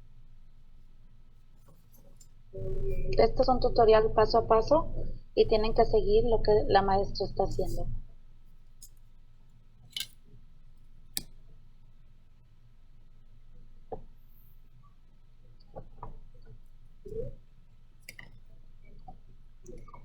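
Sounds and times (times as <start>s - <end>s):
ruler and pencil clicks on desk: 9.9s - 10.2s.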